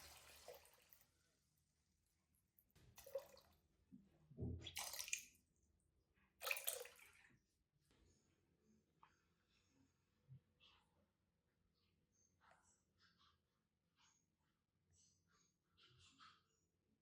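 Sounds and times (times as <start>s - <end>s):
water splashing and sloshing: 0.0s - 1.1s, 2.8s - 3.6s, 4.5s - 5.4s, 6.4s - 7.3s.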